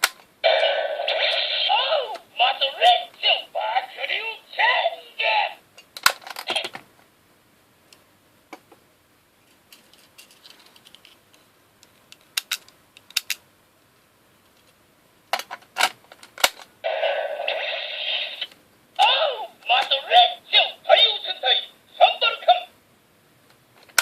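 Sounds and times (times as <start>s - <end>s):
plastic toy parts clicking: 11.8s - 13.4s.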